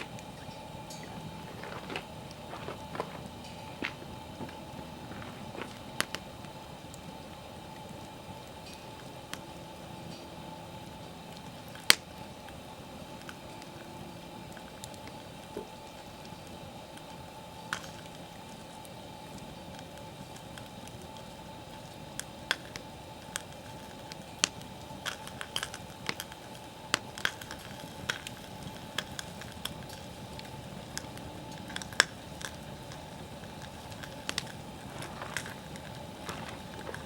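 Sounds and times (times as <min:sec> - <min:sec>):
campfire crackling: 0:00.0 - 0:37.0.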